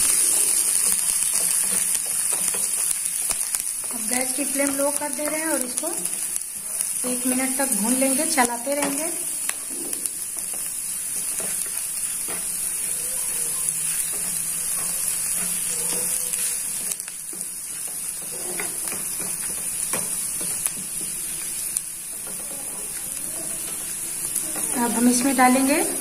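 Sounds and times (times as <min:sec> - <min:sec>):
garlic sizzling in oil: 0:00.0 - 0:26.0
wooden spatula scraping pan: 0:13.9 - 0:21.2.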